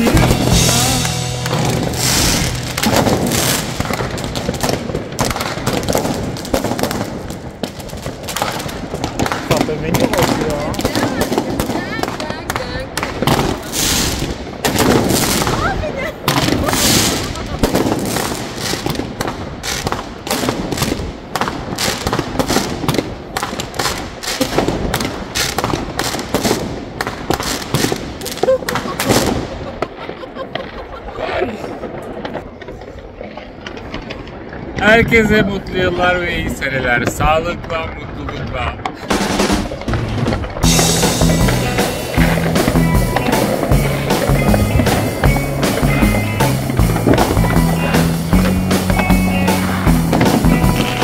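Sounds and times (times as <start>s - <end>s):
fireworks bangs and crackles: 0.0s - 51.0s.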